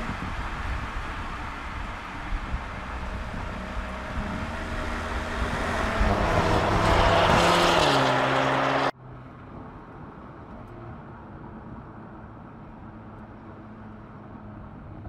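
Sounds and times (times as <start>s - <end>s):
even rushing noise: 0.0s - 8.9s
car engine and exhaust: 0.0s - 15.0s
road noise: 0.0s - 15.0s.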